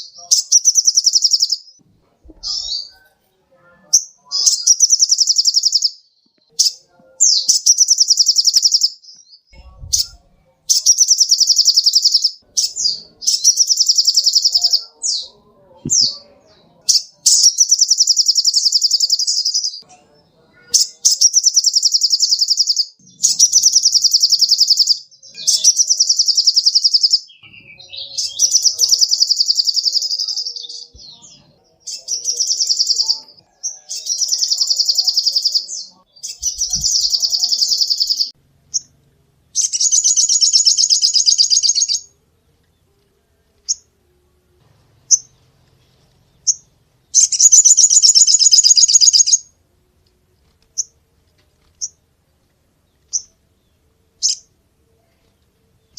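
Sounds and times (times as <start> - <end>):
songbird rattling trill: 0.3 - 1.7, 4.0 - 6.0, 7.5 - 9.0, 9.9 - 14.8, 16.9 - 19.8, 20.8 - 27.3, 31.9 - 38.9, 39.6 - 42.1, 47.2 - 49.4.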